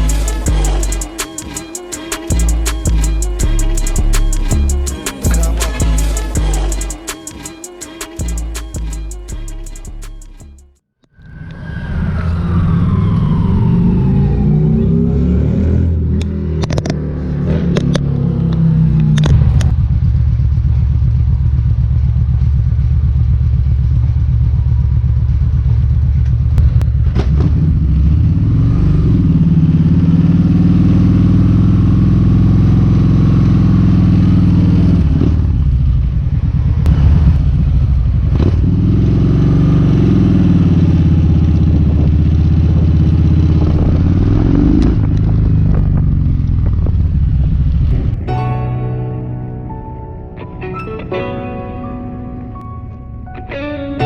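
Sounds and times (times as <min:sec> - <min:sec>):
motorcycle engine running: 0:00.0 - 0:10.8, 0:16.6 - 0:48.3.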